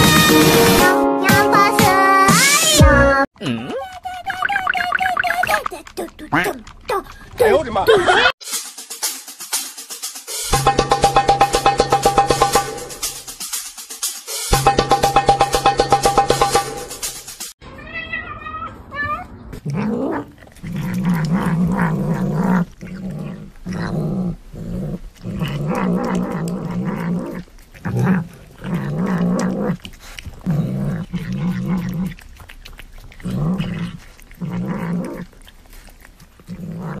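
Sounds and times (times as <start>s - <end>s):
cat growling: 17.8s - 37.0s.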